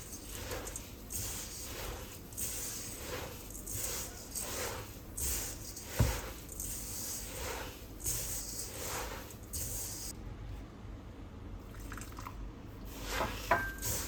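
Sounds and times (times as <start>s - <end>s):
gritty swishing strokes: 0.0s - 10.1s.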